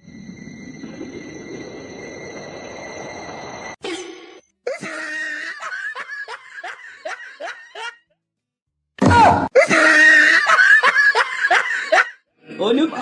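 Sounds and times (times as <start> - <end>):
person laughing: 4.9 - 8.0, 9.6 - 12.2.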